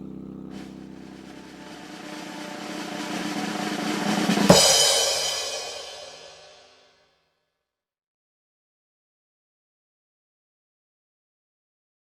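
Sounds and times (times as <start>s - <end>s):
drum roll: 0.9s - 6.8s
crash cymbal hit: 1.1s - 6.8s.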